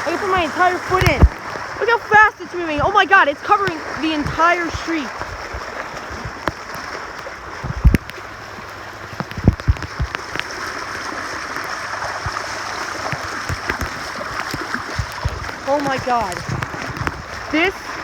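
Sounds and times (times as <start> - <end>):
low thumps: 0.0 - 6.7, 7.6 - 8.2, 9.0 - 10.4
floodwater rushing along street: 0.0 - 18.0.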